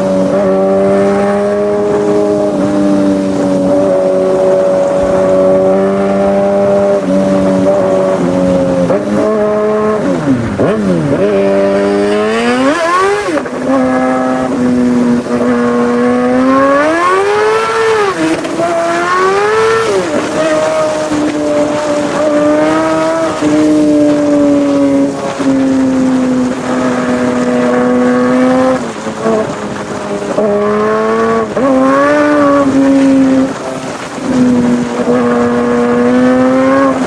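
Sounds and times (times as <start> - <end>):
motorcycle engine revving high: 0.0 - 37.0.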